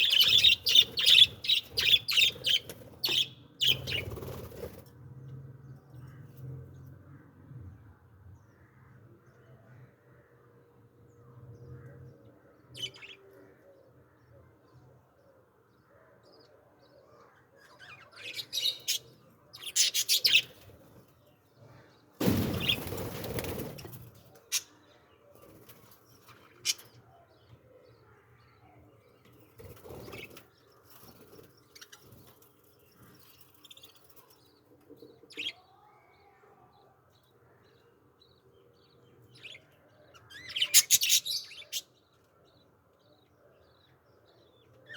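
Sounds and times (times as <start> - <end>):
small birds chirping: 0.0 - 4.9, 11.1 - 44.9
wings flapping: 22.2 - 24.1.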